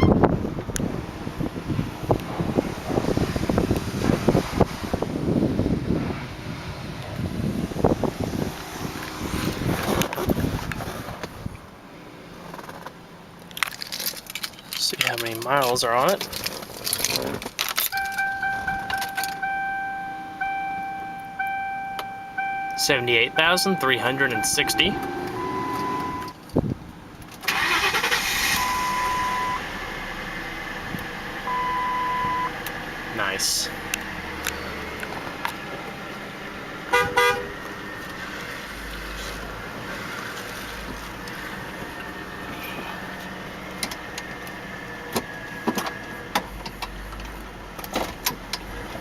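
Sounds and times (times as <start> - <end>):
car engine starting: 0.0 - 49.0
single-tone warning chime: 18.0 - 26.3, 28.6 - 29.6, 31.5 - 32.5
thin steady whine: 18.0 - 26.4.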